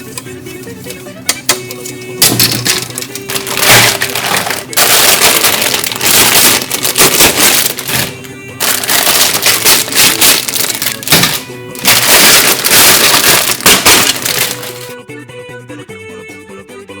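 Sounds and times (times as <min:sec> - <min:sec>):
plastic packaging crinkling: 0:02.2 - 0:15.0.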